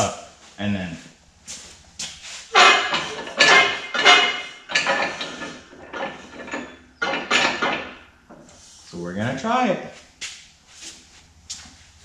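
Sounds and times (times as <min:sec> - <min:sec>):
metal pipe clanking and scraping: 0:02.5 - 0:08.6
sharp metal knocks: 0:02.6 - 0:08.4.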